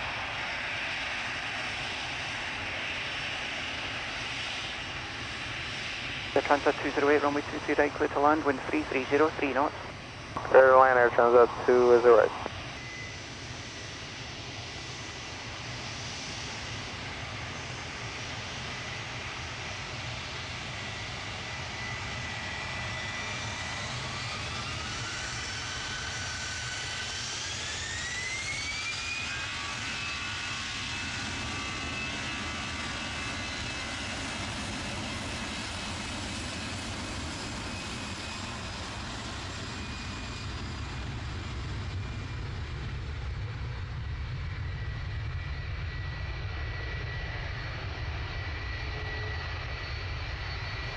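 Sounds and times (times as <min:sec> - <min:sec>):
jet engines spooling up: 0:00.1 - 0:19.8.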